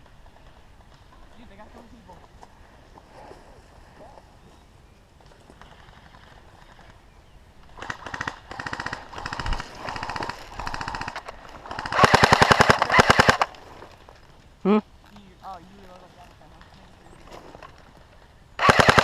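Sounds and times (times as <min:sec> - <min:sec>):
airsoft guns firing bursts: 0:07.7 - 0:13.6, 0:18.6 - 0:19.0.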